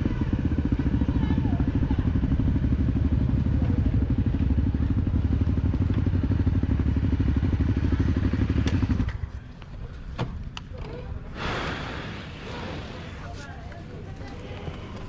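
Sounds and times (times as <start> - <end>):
dirt bike engine running: 0.0 - 9.3.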